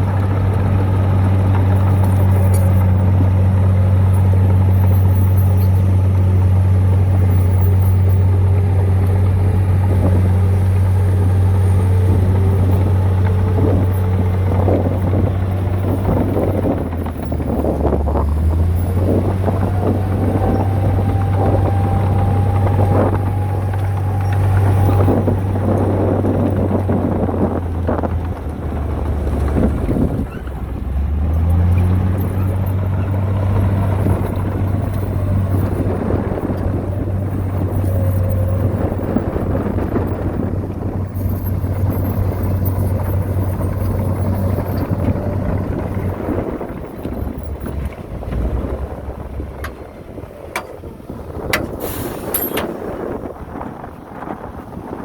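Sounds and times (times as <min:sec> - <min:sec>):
heavy diesel engine running hard: 0:00.0 - 0:55.0
metal clanks and knocks: 0:49.4 - 0:50.9, 0:51.5 - 0:52.8.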